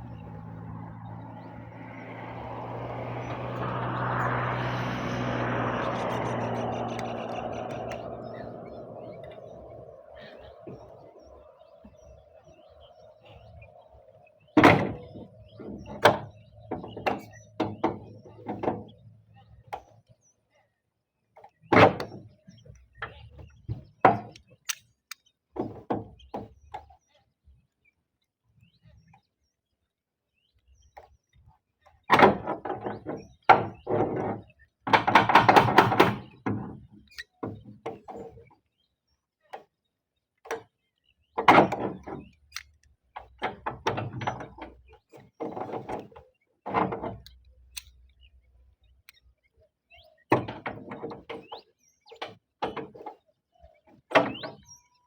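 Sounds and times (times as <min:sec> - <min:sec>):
knocks and thuds of roof tiles: 0:25.6 - 0:26.5, 0:32.1 - 0:38.4, 0:41.4 - 0:42.3, 0:43.2 - 0:47.3, 0:50.3 - 0:51.5.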